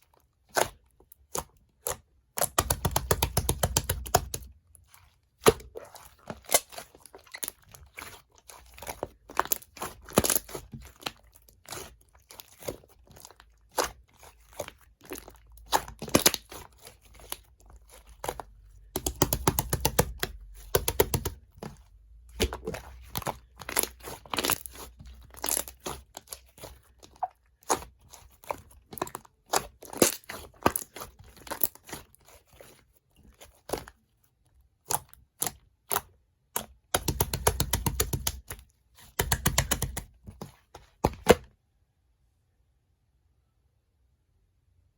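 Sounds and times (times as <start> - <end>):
slime crackling and popping: 22.4 - 32.1.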